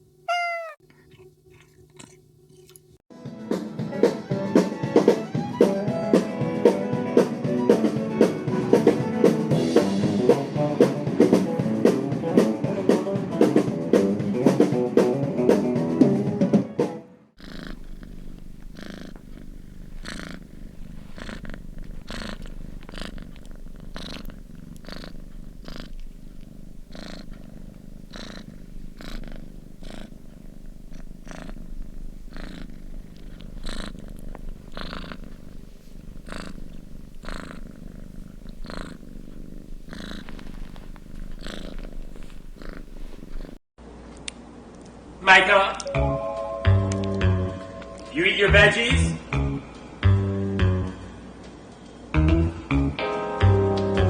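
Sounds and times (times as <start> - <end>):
cat purring: 0.3 - 3.0, 17.3 - 43.6
music with steady beat: 52.2 - 54.0.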